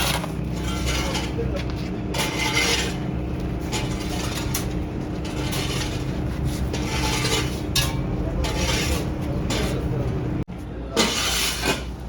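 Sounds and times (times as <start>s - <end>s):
scraping and rubbing: 0.0s - 10.0s, 11.0s - 11.9s
low machine hum: 0.0s - 11.0s.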